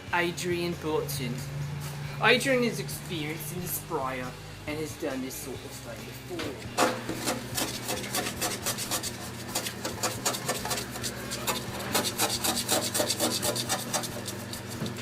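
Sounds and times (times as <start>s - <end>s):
hand scraper rasping on surface: 6.8s - 15.0s.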